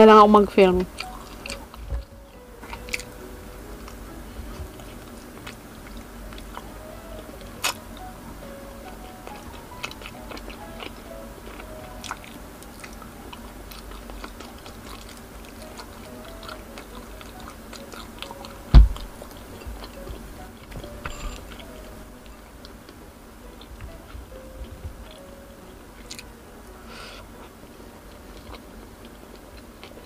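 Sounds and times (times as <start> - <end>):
soft background music: 0.0 - 30.0
person biting and chewing: 0.9 - 6.8, 7.4 - 8.1, 8.8 - 20.1, 20.8 - 21.8, 26.0 - 26.3, 26.9 - 30.0
loud deep thump: 18.7 - 19.2.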